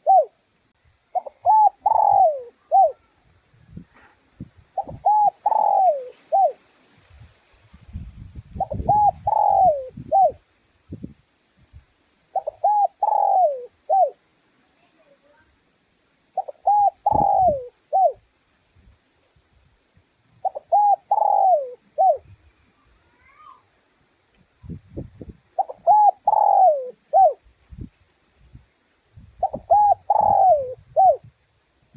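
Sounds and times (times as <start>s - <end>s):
dove cooing: 0.0s - 0.4s, 1.1s - 3.1s, 4.8s - 6.6s, 8.6s - 10.4s, 12.3s - 14.2s, 16.4s - 18.2s, 20.4s - 22.3s, 25.6s - 27.4s, 29.4s - 31.3s.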